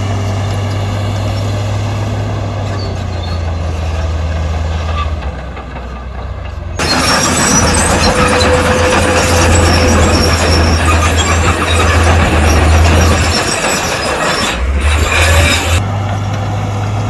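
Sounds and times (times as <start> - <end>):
diesel engine droning: 0.0 - 17.0
harsh machine grinding: 6.8 - 17.0.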